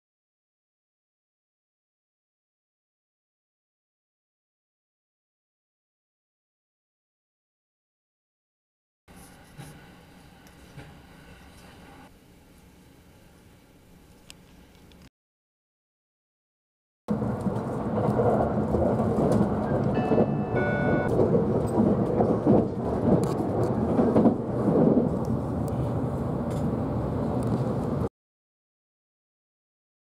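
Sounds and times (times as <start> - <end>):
train wheels rumbling on track: 17.1 - 28.1.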